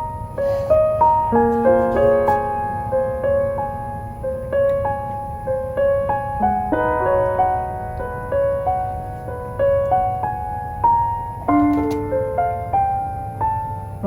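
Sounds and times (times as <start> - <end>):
low background noise: 0.0 - 14.0
solo piano melody: 0.0 - 14.0.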